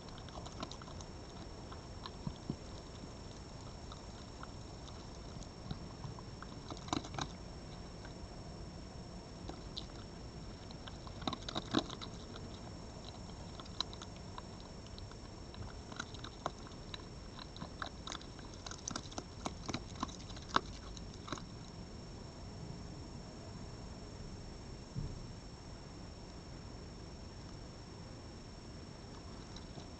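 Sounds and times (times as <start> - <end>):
animal crunching food: 0.0 - 8.2, 9.4 - 21.8, 29.1 - 29.9
faint high electronic whine: 0.0 - 29.9
steady hiss: 0.0 - 29.9.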